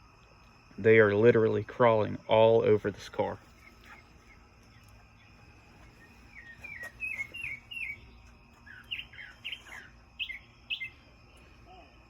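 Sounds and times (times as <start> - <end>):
faint high insect drone: 0.0 - 12.0
bird chirping: 3.4 - 11.8.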